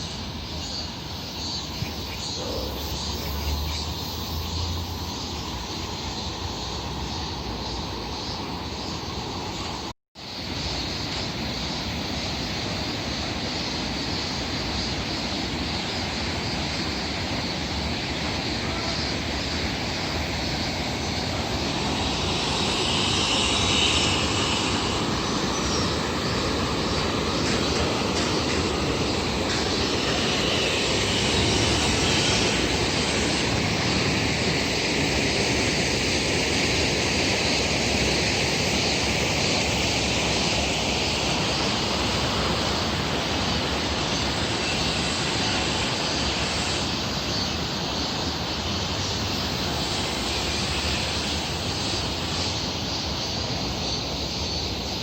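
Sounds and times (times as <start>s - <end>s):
stream rushing: 4.4s - 55.0s.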